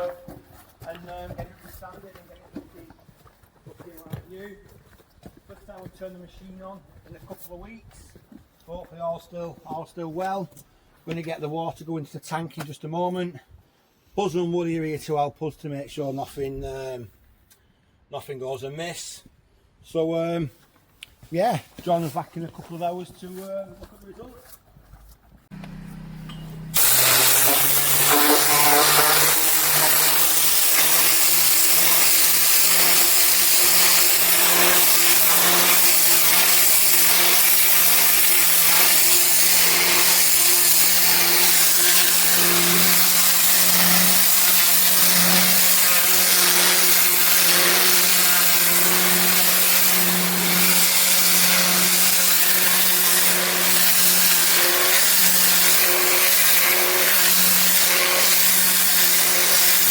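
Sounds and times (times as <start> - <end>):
pressure washer motor humming: 25.5 - 59.9
water spray hissing on paving: 26.8 - 59.9.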